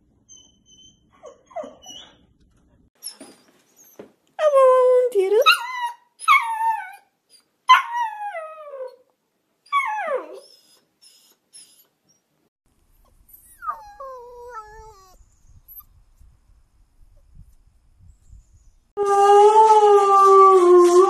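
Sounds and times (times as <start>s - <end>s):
puppy howling: 13.4s - 15.2s.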